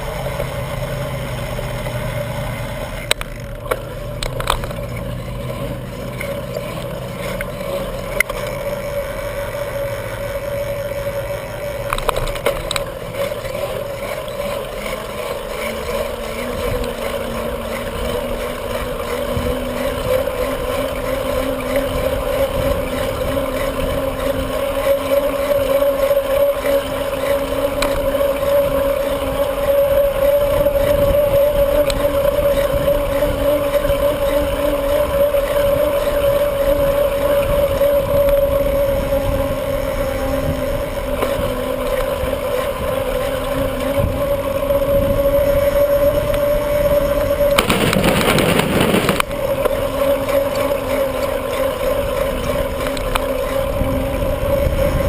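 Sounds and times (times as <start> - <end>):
bicycle tyres rolling: 0.0 - 55.0
wind on microphone: 28.5 - 50.6, 52.0 - 55.0.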